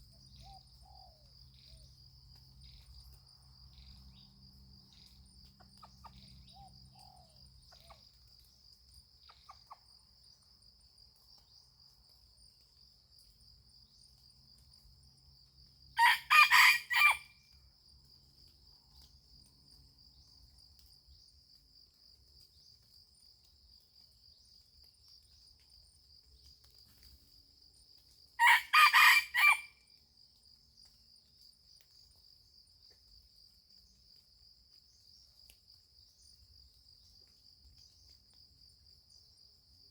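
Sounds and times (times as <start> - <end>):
insects droning: 0.0 - 39.9
rooster crowing: 16.0 - 17.3, 28.4 - 29.7.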